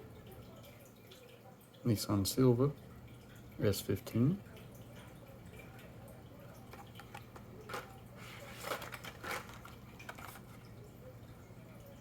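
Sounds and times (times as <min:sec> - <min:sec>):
low steady hum: 0:00.0 - 0:12.0
packaging clicks and rustles: 0:06.7 - 0:10.7.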